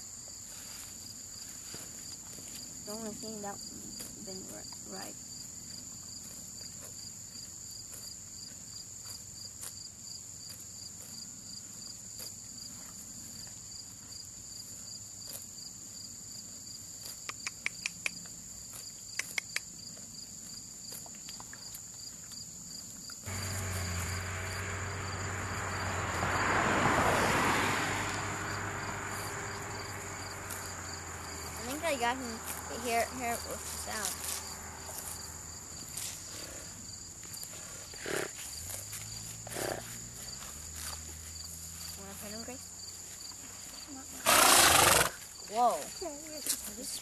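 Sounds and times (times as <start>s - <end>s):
insects trilling: 0.0s - 47.0s
loud rushing noise: 23.3s - 31.6s.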